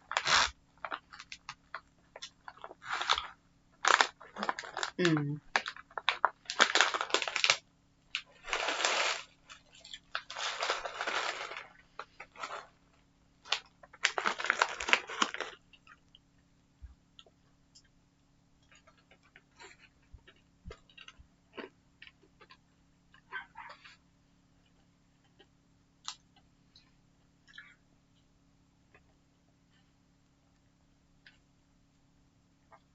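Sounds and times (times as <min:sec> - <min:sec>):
plastic packet crinkling: 0:00.0 - 0:12.8, 0:13.4 - 0:15.9.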